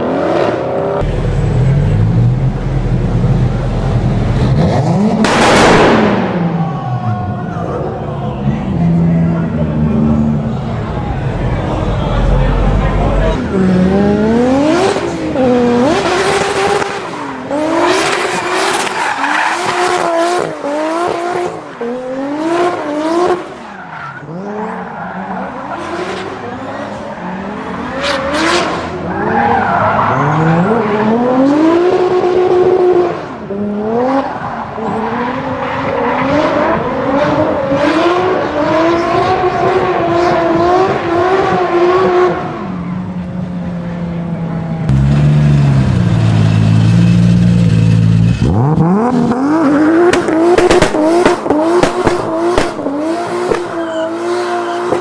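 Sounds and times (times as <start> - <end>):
sports car engines accelerating: 0.0 - 55.0
exhaust cracks: 5.2 - 6.7, 44.9 - 53.8.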